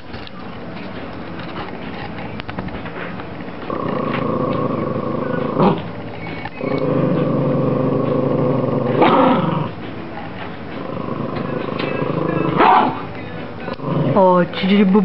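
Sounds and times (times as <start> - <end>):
dog growling: 3.7 - 6.0, 6.6 - 9.8, 10.8 - 13.1, 13.7 - 14.4
dog snarling: 3.7 - 6.0, 6.6 - 9.8, 10.8 - 13.1, 13.7 - 14.3.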